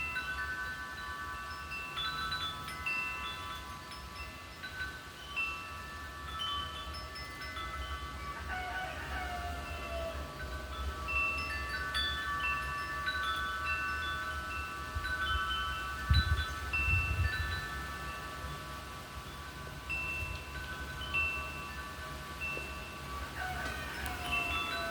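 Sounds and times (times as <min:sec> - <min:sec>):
metal wind chimes ringing: 0:00.0 - 0:24.9
wind rumbling on microphone: 0:11.5 - 0:24.9.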